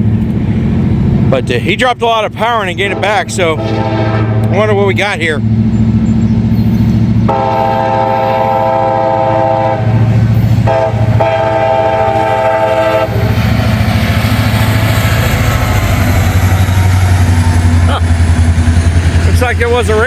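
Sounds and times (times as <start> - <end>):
engine rumble: 0.0 - 20.0
train wheel and rail noise: 0.0 - 20.0
locomotive air horn: 2.8 - 4.6, 7.3 - 13.3.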